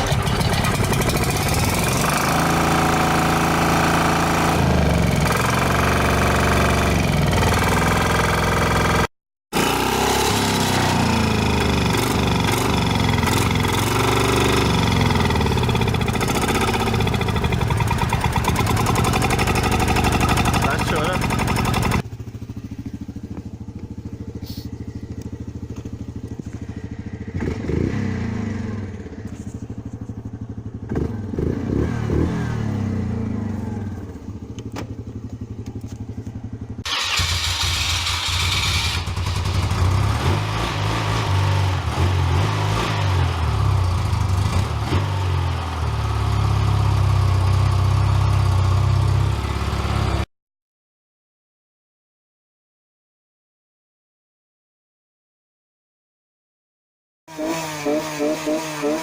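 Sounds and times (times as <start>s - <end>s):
small engine idling and revving: 0.0s - 50.3s, 57.3s - 59.0s.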